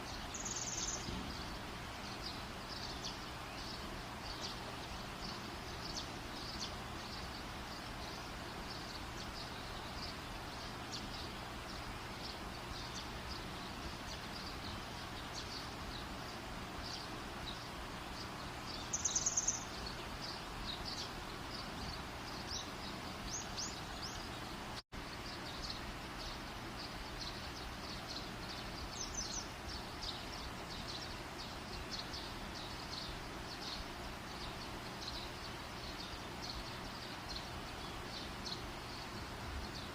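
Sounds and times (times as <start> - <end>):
steady hiss: 0.0 - 39.9
high insect chirps: 0.1 - 1.5, 18.9 - 19.8.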